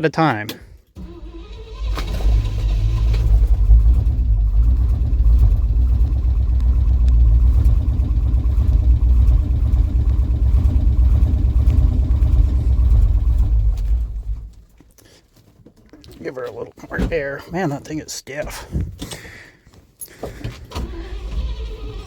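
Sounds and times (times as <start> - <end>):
engine running low-pitched: 1.0 - 14.8, 20.8 - 22.0.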